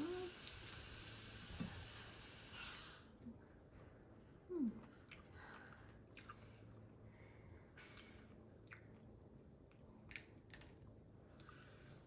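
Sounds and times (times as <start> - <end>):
person chewing wetly: 4.8 - 12.0
lip smacks and clicks: 7.8 - 11.7.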